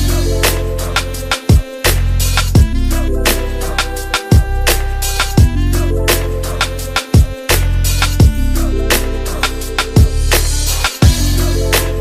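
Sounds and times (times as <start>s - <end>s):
hip hop beat with deep bass: 0.0s - 12.0s
heavy kick drum: 1.3s - 1.8s, 2.4s - 2.9s, 4.2s - 4.7s, 5.3s - 5.8s, 7.0s - 8.6s, 9.9s - 11.5s.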